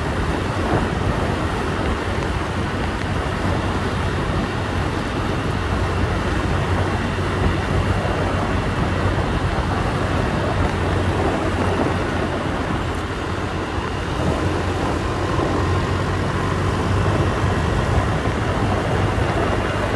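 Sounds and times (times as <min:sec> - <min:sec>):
motorbike engine humming: 0:00.0 - 0:19.9
wind and road noise: 0:00.0 - 0:19.9.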